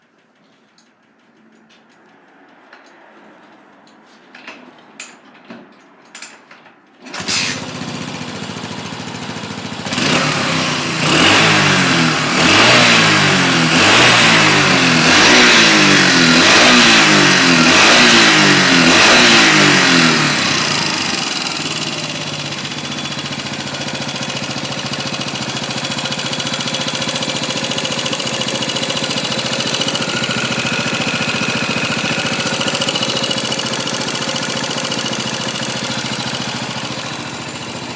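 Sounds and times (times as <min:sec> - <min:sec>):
engine starter clicks and knocks: 0:04.5 - 0:10.2
motorcycle engine revving and idling: 0:07.1 - 0:37.9.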